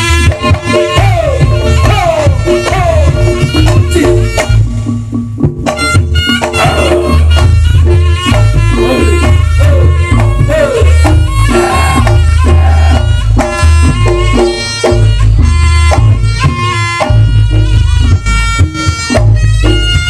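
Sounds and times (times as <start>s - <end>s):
gongs repeating notes: 0.2s - 19.8s
heavy hand drum strokes: 0.3s - 20.0s
shrill double-reed melody: 5.8s - 20.0s.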